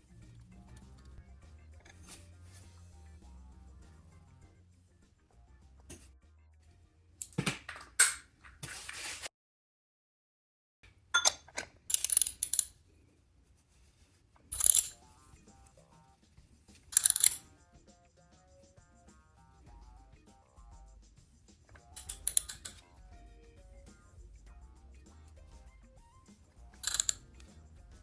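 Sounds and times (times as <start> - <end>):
faint background music: 0.0 - 9.1, 11.1 - 28.0
metal tools clinking and rattling: 11.2 - 12.7, 14.5 - 15.0, 17.0 - 17.4, 21.8 - 22.8, 26.8 - 27.2.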